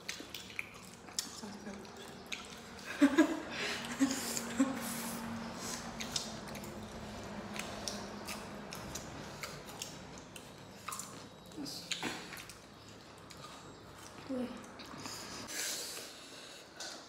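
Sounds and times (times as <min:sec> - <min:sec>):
wet chewing and mouth smacks: 0:00.0 - 0:03.0, 0:05.4 - 0:15.2.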